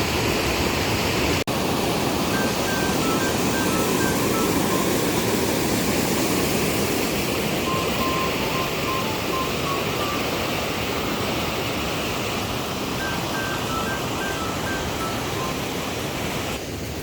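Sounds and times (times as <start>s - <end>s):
waterfall rushing: 0.0s - 17.0s
faint music with high notes: 7.6s - 10.2s.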